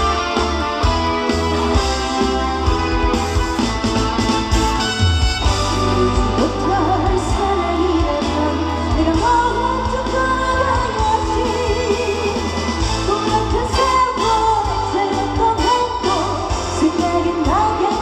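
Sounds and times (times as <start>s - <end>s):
backing track with heavy bass: 0.0s - 18.0s
woman singing amplified: 5.8s - 18.0s.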